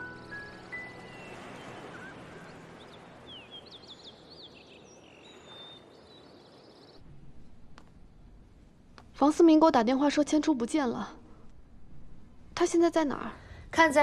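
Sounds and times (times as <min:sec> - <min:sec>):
birds chirping: 0:00.0 - 0:07.0
outdoor ambience hiss: 0:00.0 - 0:14.0.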